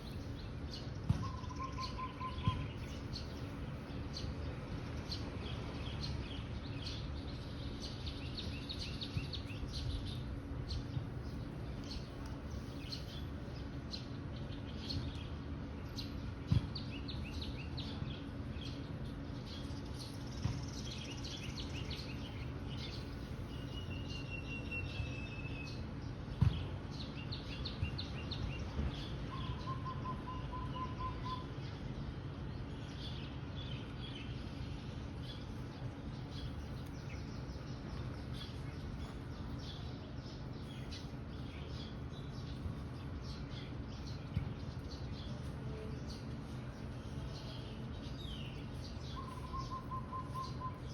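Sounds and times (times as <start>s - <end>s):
birds chirping: 0.0s - 50.9s
bird lower pulsed trill: 1.2s - 3.4s, 29.3s - 31.6s, 48.4s - 50.9s.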